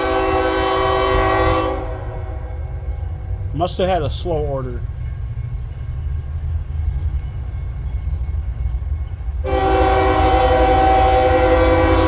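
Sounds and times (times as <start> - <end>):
locomotive air horn chord: 0.0 - 2.6, 9.4 - 12.0
diesel locomotive rumbling: 0.0 - 12.0.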